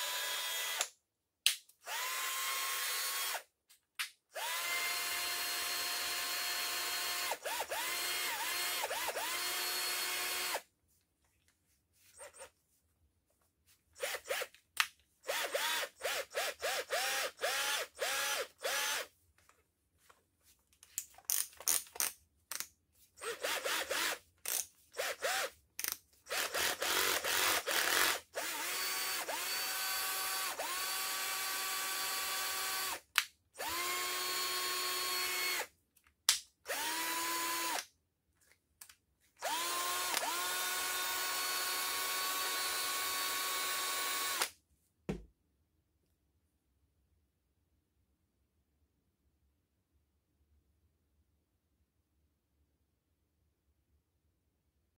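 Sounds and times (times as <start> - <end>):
cordless drill running: 0.0 - 0.9, 1.8 - 3.4, 4.4 - 10.6, 14.0 - 14.5, 15.3 - 19.1, 23.2 - 24.2, 25.0 - 25.5, 26.3 - 33.0, 33.6 - 35.7, 36.7 - 37.8, 39.4 - 44.5.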